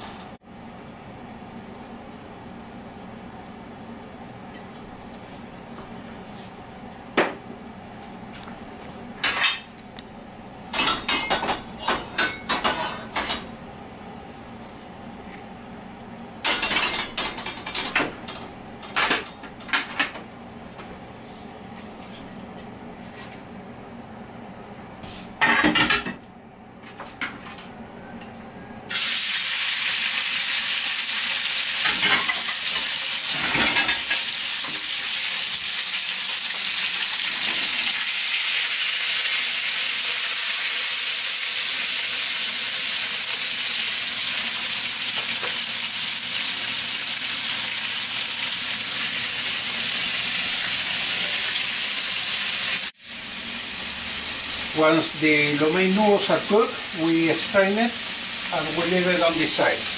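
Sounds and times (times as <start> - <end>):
kitchen utensils clattering: 10.8 - 13.5, 16.4 - 20.1, 25.4 - 26.2, 31.8 - 34.3
meat sizzling in hot oil: 28.9 - 59.9.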